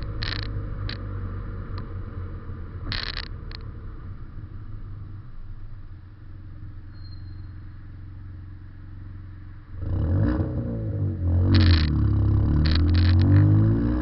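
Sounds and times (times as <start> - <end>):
car exhaust drone: 0.0 - 14.0.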